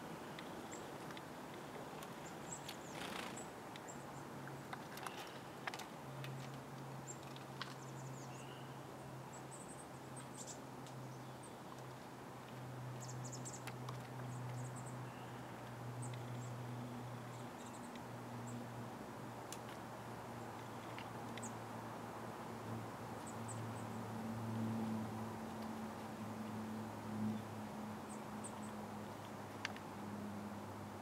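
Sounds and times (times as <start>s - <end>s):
small birds chirping: 0.0s - 18.7s, 19.5s - 21.7s, 23.1s - 24.0s.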